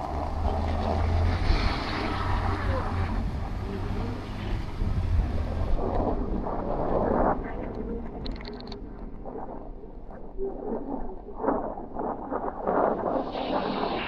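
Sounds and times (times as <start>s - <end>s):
traffic: 0.0s - 9.1s
wind rumbling on microphone: 0.0s - 14.0s.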